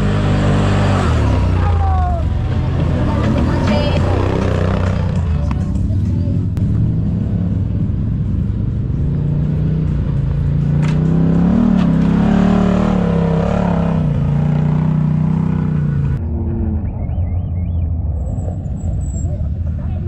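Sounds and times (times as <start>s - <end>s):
off-road vehicle engine revving: 0.0s - 20.0s.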